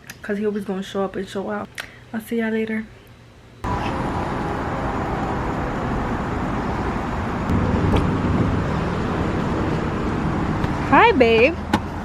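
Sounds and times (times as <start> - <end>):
road traffic noise: 3.6 - 12.0.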